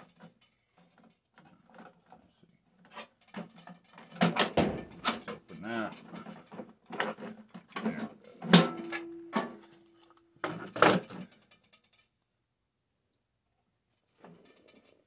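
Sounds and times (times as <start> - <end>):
metal parts clicking and knocking: 2.9 - 9.8.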